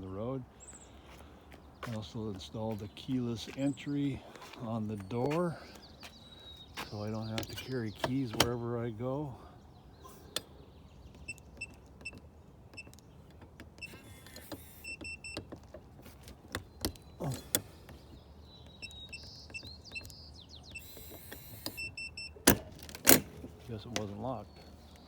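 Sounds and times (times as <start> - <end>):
door latch clacks: 7.4 - 8.6
keypad beeping: 13.8 - 15.5, 18.7 - 22.5.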